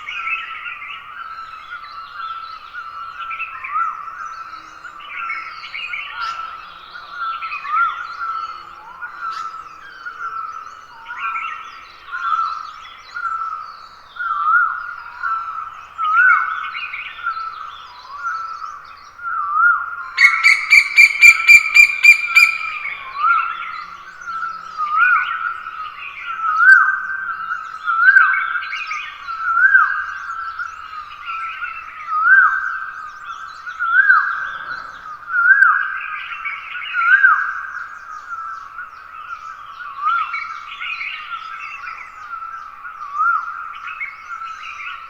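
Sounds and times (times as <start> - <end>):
birds chirping and whistling: 20.0 - 45.0
bird rapid ringing notes: 20.2 - 23.1.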